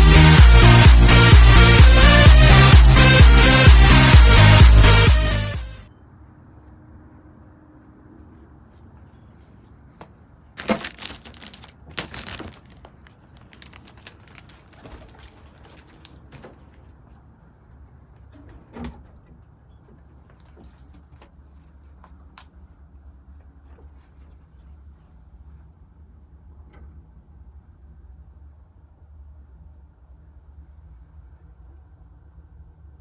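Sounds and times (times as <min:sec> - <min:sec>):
pigeons rustling and flapping: 0:10.6 - 0:16.9.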